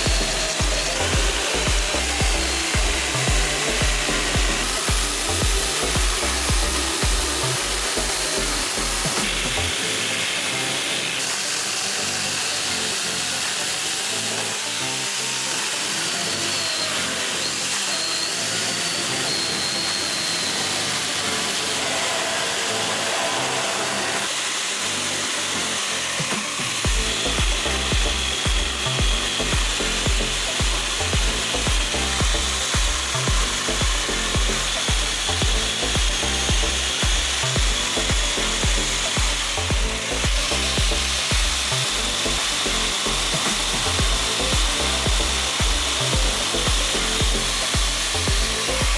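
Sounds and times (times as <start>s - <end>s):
bass beat: 0.0s - 10.1s, 26.8s - 48.9s
background music: 0.0s - 48.9s
power tool sanding wood: 0.0s - 48.9s.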